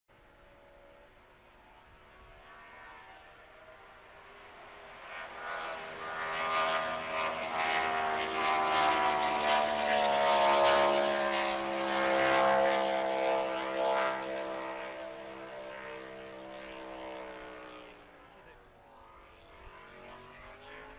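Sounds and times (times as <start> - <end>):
race boat engine passing by: 0.2 - 20.9.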